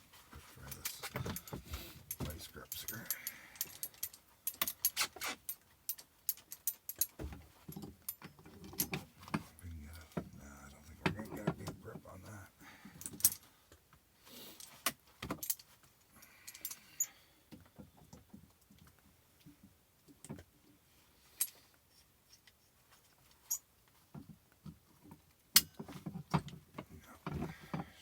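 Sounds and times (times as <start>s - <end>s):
sharp metal clicks and clinks: 0.7s - 7.2s.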